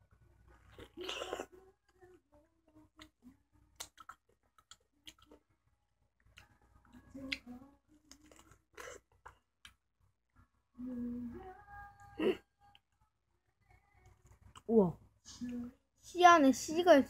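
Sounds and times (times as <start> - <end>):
mouth chewing juicy fruit: 3.8 - 5.4.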